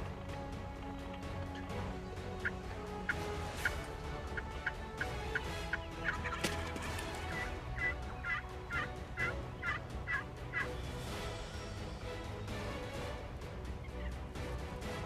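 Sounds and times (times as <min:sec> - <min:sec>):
wild turkeys calling: 0:00.0 - 0:11.1.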